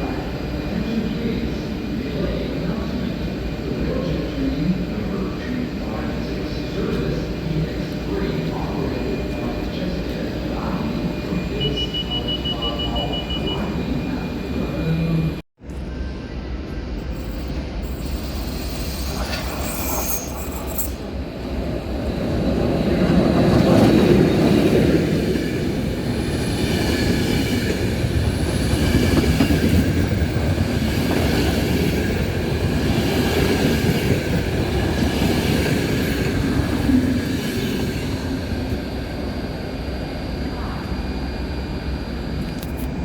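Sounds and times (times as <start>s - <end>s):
train wheels rumbling and clattering: 15.7s - 39.2s.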